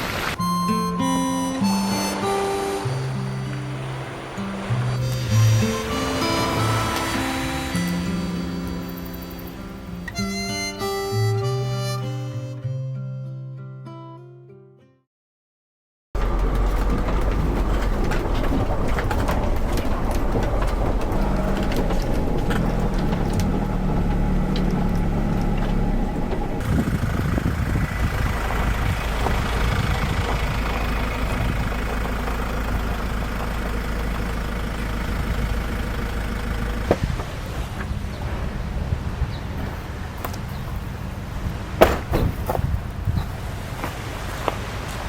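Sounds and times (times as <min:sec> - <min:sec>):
vehicle engine running: 0:00.0 - 0:12.0, 0:16.2 - 0:43.7
road noise: 0:00.0 - 0:12.6, 0:16.2 - 0:45.0
strong low hum: 0:00.3 - 0:10.1, 0:16.2 - 0:40.2.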